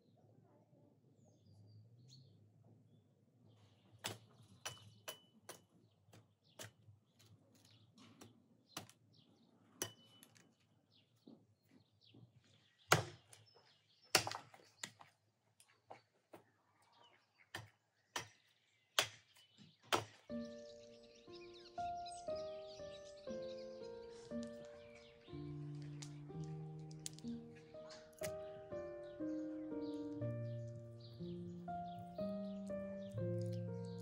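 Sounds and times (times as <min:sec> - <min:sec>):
birds chirping: 0:03.4 - 0:34.0
music: 0:20.3 - 0:34.0.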